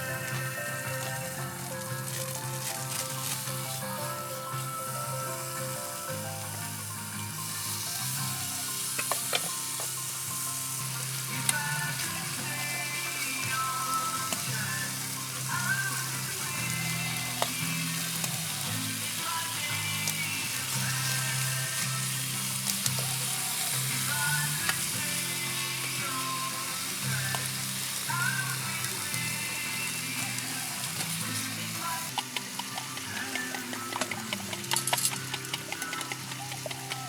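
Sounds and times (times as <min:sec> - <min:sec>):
food sizzling in a pan: 0:00.0 - 0:37.0
soft background music: 0:00.0 - 0:37.0
utensils clicking: 0:07.8 - 0:10.2, 0:26.3 - 0:37.0.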